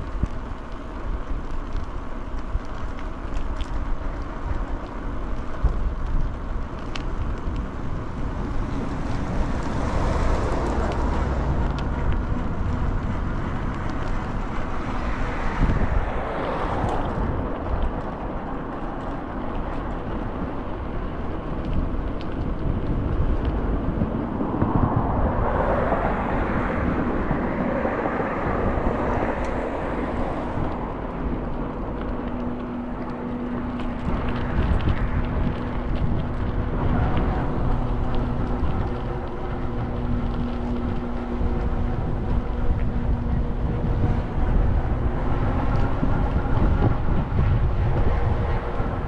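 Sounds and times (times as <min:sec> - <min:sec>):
bus engine and road rumble: 0:00.0 - 0:49.0.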